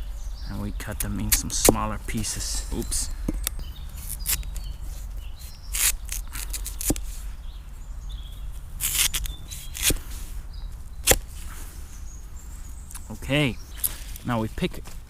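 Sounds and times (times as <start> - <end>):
faint bird chirps: 0.0 - 14.5
knife cutting raw potatoes: 5.4 - 7.1, 8.8 - 10.0, 11.0 - 11.2.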